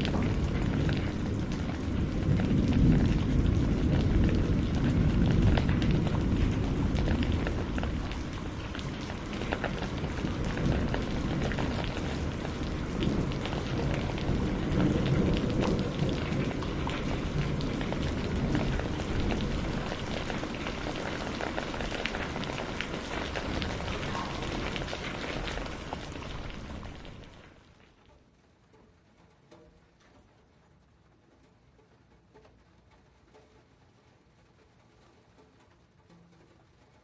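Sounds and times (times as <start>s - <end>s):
low rumble: 0.0s - 27.4s
raindrops ticking on a surface: 0.0s - 37.0s.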